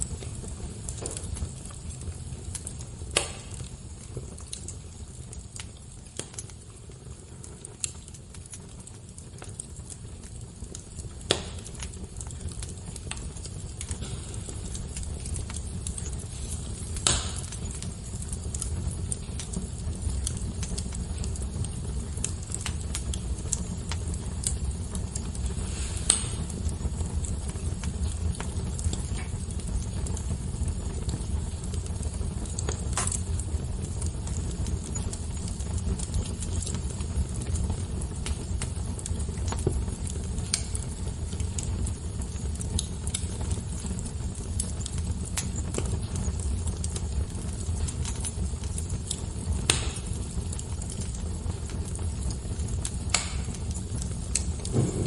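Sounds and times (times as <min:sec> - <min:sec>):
fire crackling: 0:00.0 - 0:55.0
loud fire pops: 0:00.0 - 0:55.0
low rumble: 0:54.6 - 0:55.0.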